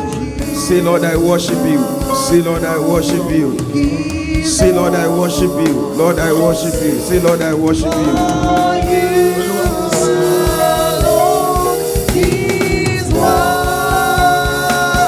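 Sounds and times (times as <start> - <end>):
band with steady drum beat: 0.0 - 15.0
voices singing together: 0.0 - 15.0.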